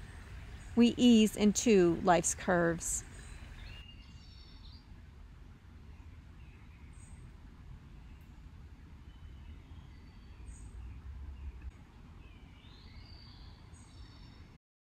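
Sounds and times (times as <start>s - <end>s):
steady low rumble: 0.0s - 3.7s
bird chirping: 0.0s - 4.9s, 12.2s - 14.6s.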